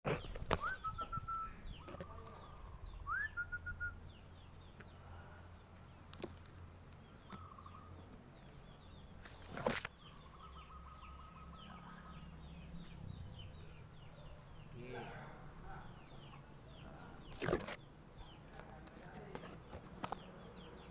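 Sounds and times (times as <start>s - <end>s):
dove cooing: 7.2s - 8.0s.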